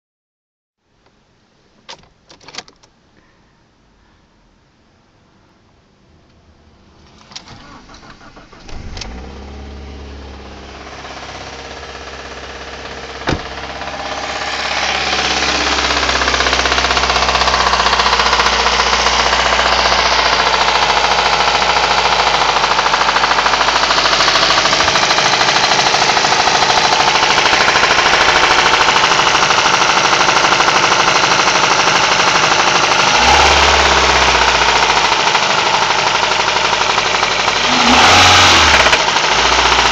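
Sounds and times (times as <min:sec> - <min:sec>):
car engine running: 0:07.1 - 0:39.9
engine rattling knock: 0:10.8 - 0:39.9.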